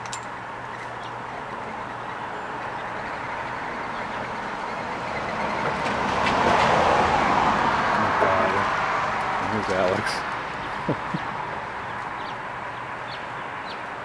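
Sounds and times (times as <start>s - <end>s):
passing vehicle rushing: 3.6s - 11.8s.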